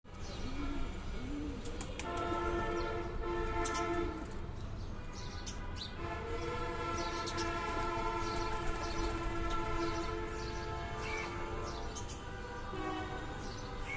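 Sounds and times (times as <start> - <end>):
pigeons cooing: 0.1 - 2.6
long horn-like sounds: 0.3 - 4.4, 6.0 - 13.9.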